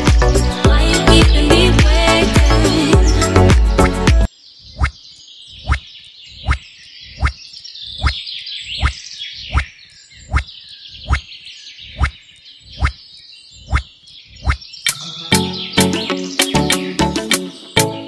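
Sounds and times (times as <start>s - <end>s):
melodic music: 0.0s - 4.3s, 15.3s - 18.0s
high chirping chorus: 0.0s - 18.0s.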